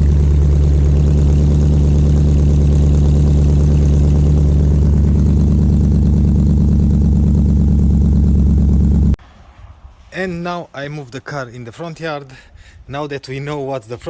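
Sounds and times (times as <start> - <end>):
car engine idling loudly: 0.0 - 9.2.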